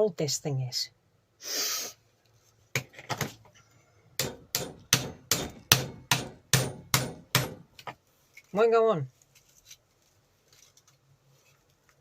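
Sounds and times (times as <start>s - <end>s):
hammer tapping metal: 4.2s - 7.9s.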